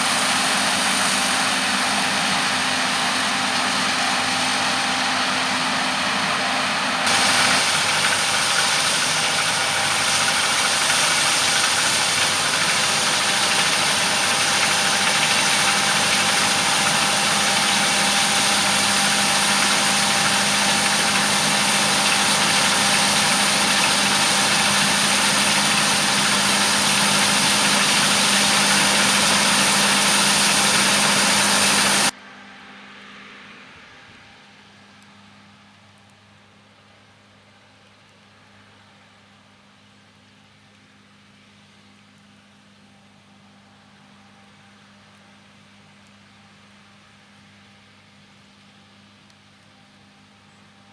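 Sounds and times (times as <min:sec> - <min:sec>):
engine hum: 0:00.0 - 0:35.5.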